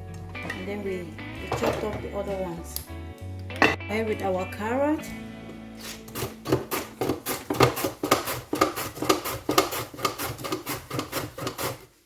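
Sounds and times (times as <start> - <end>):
knife chopping on cutting board: 5.8 - 11.8.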